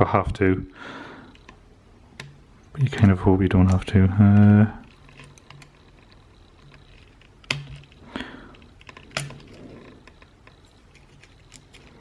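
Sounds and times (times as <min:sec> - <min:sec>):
tool clicking on plastic: 0:01.4 - 0:12.0
light scraping: 0:02.7 - 0:12.0.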